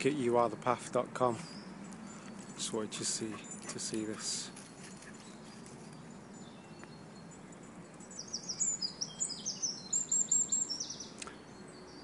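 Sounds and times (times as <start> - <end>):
faint outdoor hiss: 0.0 - 12.0
songbird chirping: 0.0 - 12.0.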